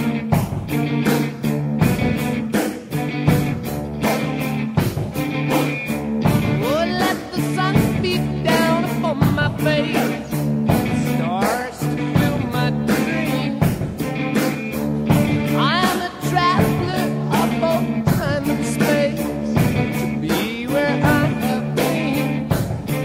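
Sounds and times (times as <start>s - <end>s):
bending lead guitar: 0.0s - 23.0s
rock music: 0.0s - 23.0s
person singing: 6.2s - 14.5s, 15.3s - 23.0s.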